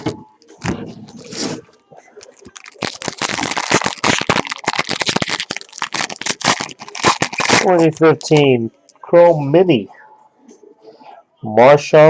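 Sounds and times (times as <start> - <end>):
foil wrapper tearing and crinkling: 2.2 - 8.4.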